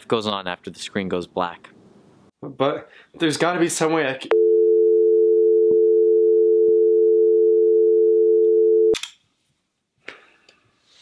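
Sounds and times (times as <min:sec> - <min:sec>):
telephone dial tone: 0:04.3 - 0:09.0.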